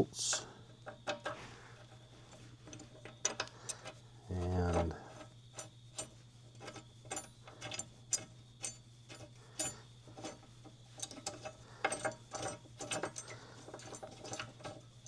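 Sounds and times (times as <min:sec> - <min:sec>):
metallic clicks of steel parts: 0:02.6 - 0:14.9.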